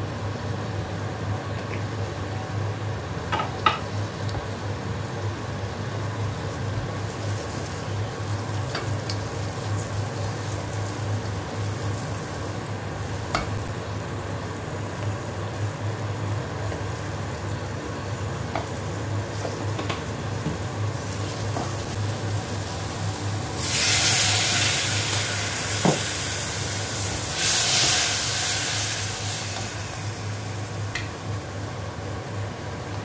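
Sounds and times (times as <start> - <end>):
vegetables sizzling in a pan: 3.3 - 32.8
sauce hissing on hot pan: 21.0 - 31.0.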